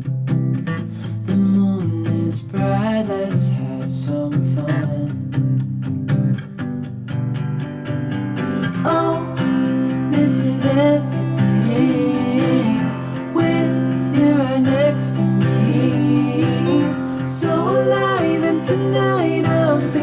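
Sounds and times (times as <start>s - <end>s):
song with guitar and singing: 0.0s - 20.0s
ticking beat: 8.9s - 20.0s.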